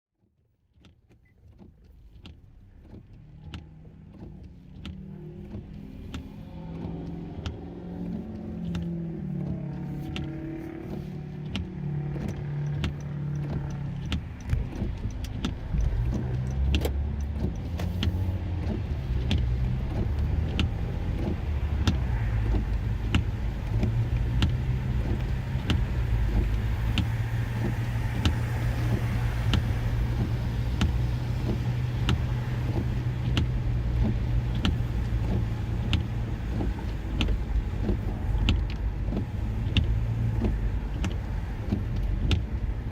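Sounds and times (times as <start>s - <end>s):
vehicle engine running: 2.5s - 42.9s.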